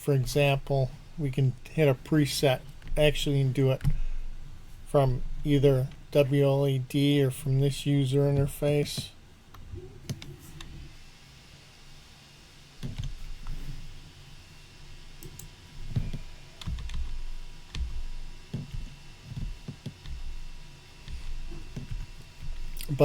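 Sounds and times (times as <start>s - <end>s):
soft low thumps: 0.2s - 11.0s, 12.8s - 14.1s, 14.7s - 23.0s
mouse and keys clicking: 15.1s - 23.0s.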